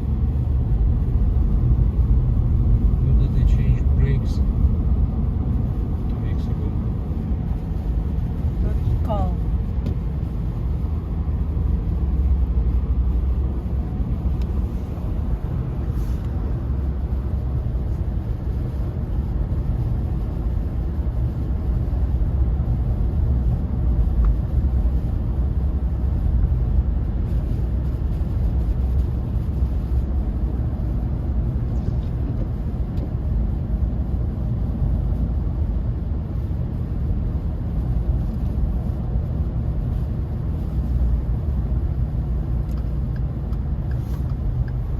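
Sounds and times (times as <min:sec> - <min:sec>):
car driving on icy road: 0:00.0 - 0:44.9.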